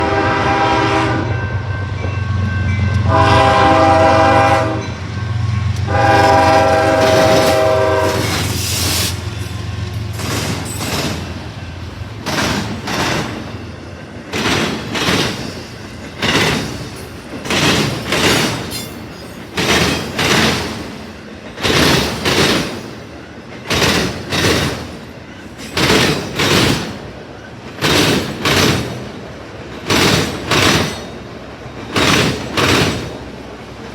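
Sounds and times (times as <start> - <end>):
locomotive horn blasts: 0.0 - 1.7, 2.9 - 5.0, 5.8 - 8.4
train wheels clicking over rail joints: 5.7 - 33.9.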